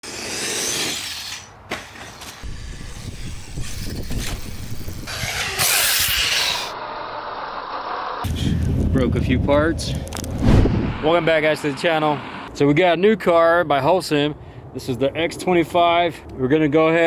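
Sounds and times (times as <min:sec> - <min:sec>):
electric motor whir: 0:00.0 - 0:01.5, 0:02.2 - 0:08.3
wind on microphone: 0:02.4 - 0:05.4, 0:08.2 - 0:12.5.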